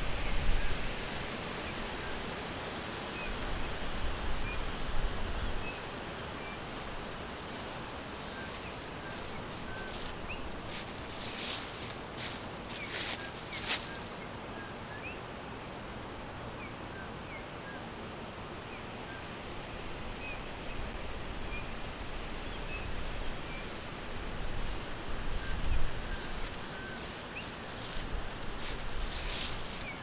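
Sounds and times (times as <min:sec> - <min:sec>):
steady background hiss: 0:00.0 - 0:30.0
small birds chirping: 0:05.6 - 0:14.6, 0:24.6 - 0:30.0.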